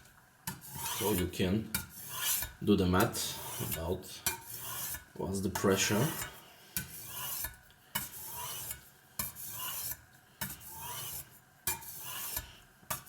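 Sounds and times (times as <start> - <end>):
knife scraping on whetstone: 0.5 - 13.0.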